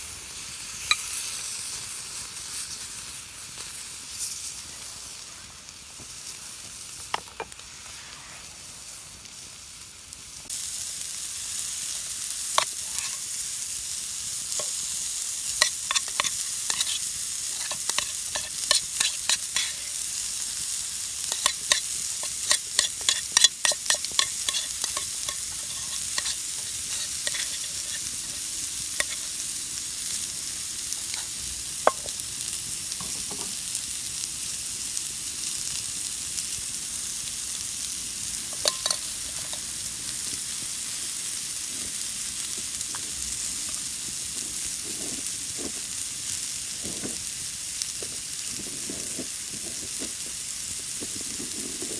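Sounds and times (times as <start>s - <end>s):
food sizzling on iron plate: 0.0s - 51.9s
sharp pops and spatters: 12.5s - 13.3s, 14.6s - 14.8s, 15.4s - 20.1s, 21.2s - 29.4s, 31.0s - 32.2s, 38.5s - 39.7s.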